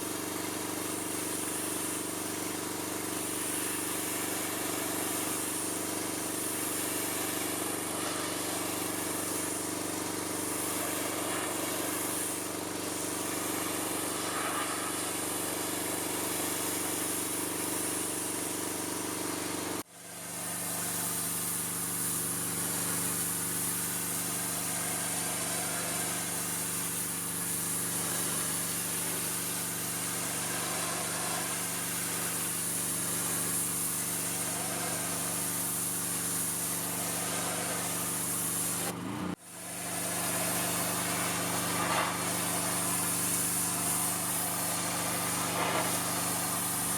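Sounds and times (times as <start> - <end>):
water spray hissing: 0.0 - 19.0, 20.4 - 46.9
pressure washer motor drone: 0.0 - 46.9.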